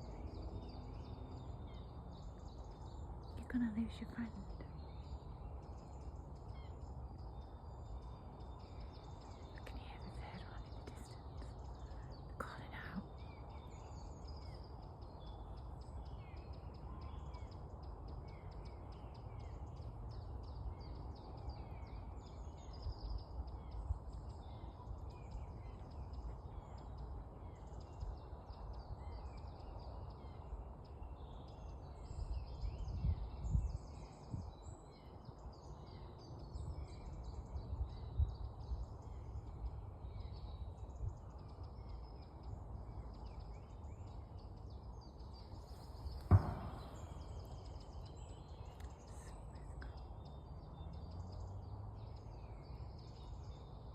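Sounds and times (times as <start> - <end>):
songbirds chirping and twittering: 0.0 - 53.9
bumps: 46.1 - 47.5.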